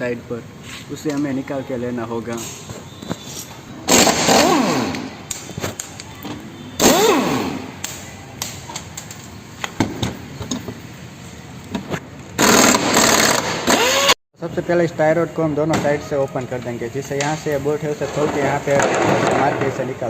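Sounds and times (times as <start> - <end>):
impact wrench spinning bolts: 3.9 - 5.1, 12.4 - 14.1.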